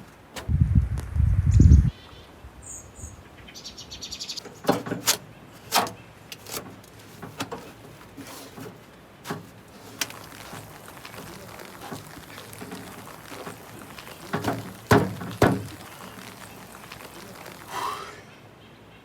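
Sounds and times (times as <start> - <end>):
sharp knocks and clatters: 4.4 - 17.6.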